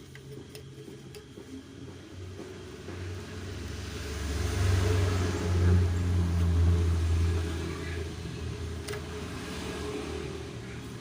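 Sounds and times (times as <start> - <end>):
vehicle passing by: 2.6 - 11.0.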